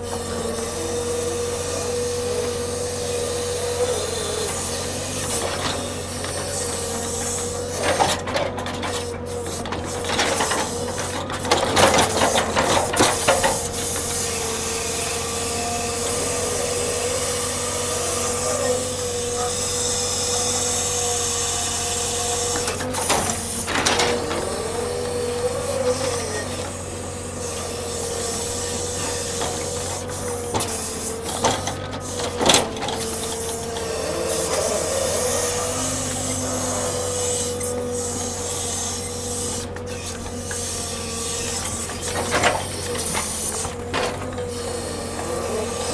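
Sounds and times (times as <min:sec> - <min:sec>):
hydraulic machinery whining: 0:00.0 - 0:45.9.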